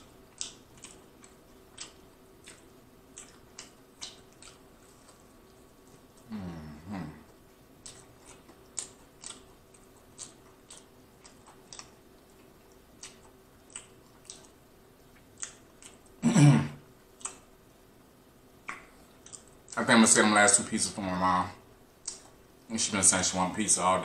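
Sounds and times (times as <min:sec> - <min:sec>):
wet chewing and mouth smacks: 0:00.0 - 0:06.3, 0:07.3 - 0:16.2, 0:17.1 - 0:17.5, 0:18.6 - 0:19.8, 0:21.9 - 0:22.4
person humming: 0:06.2 - 0:07.3.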